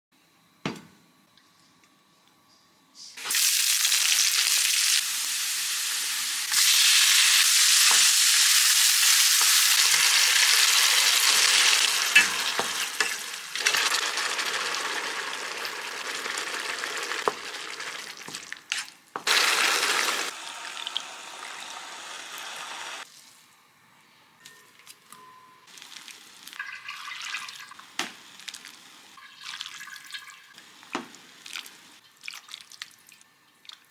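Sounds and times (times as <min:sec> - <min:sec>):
food sizzling in a hot pan: 0:03.2 - 0:18.2, 0:19.3 - 0:23.0.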